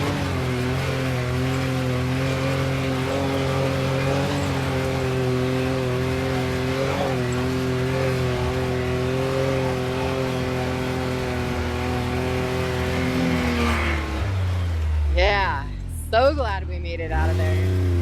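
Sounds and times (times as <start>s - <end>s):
off-road vehicle engine running: 0.0s - 18.0s.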